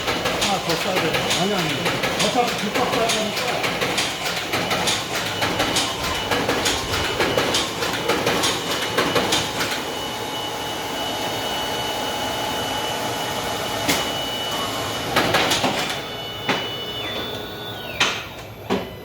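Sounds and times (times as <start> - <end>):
rhythmic machine clack: 0.0 - 9.9
mechanical whir with high whine: 4.0 - 19.0.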